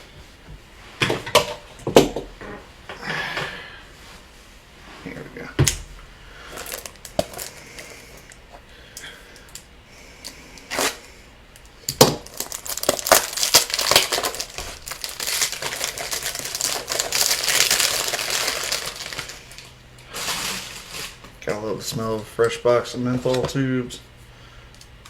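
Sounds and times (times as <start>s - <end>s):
packaging crinkling and tearing: 6.5s - 8.3s, 10.7s - 11.1s, 12.0s - 21.4s.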